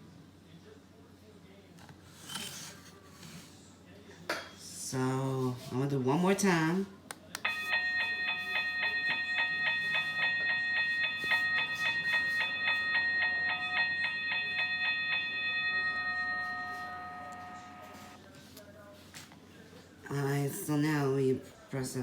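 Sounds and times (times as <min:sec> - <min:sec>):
mechanical crossing bell ringing: 0:07.4 - 0:18.2.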